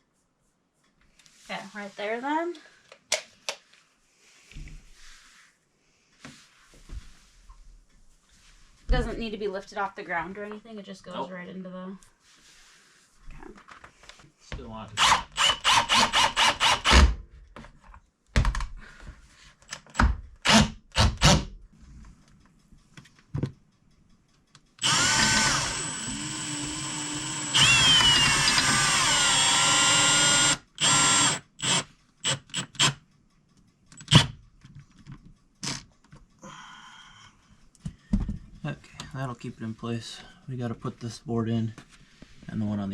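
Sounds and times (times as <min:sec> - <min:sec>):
cordless drill driving screw: 0:15.0 - 0:17.2, 0:19.7 - 0:21.5, 0:24.8 - 0:33.0
knocks of wood and metal parts: 0:19.6 - 0:21.5, 0:23.0 - 0:23.7, 0:37.8 - 0:38.6.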